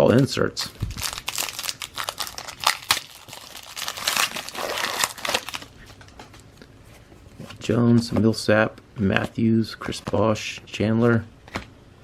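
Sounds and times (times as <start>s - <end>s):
wrapper tearing and crinkling: 0.6s - 6.0s.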